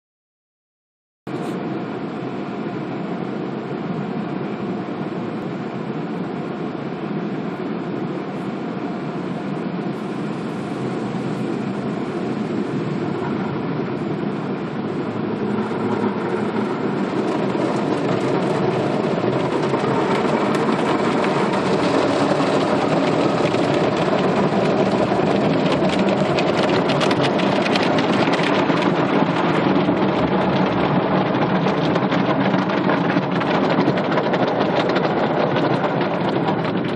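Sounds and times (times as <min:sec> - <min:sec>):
car wash machine rumble: 0:01.3 - 0:36.9
water spraying on car: 0:14.2 - 0:36.9.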